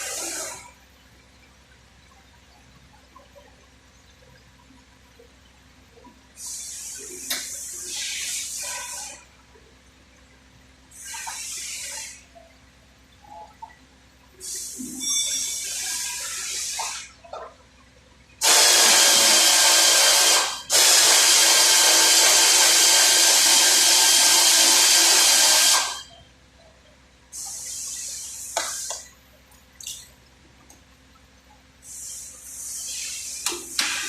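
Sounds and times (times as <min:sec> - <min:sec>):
compressed air hissing from air gun: 0:14.4 - 0:17.1, 0:18.4 - 0:26.0, 0:27.4 - 0:29.0, 0:31.8 - 0:34.0.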